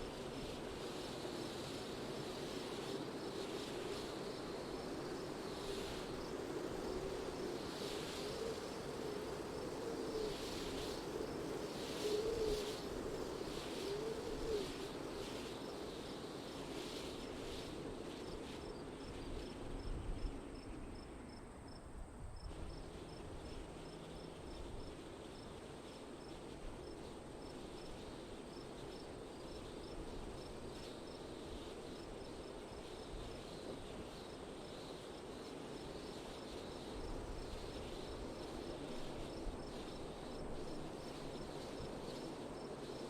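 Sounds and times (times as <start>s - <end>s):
wind gusts whistling: 0.0s - 21.8s.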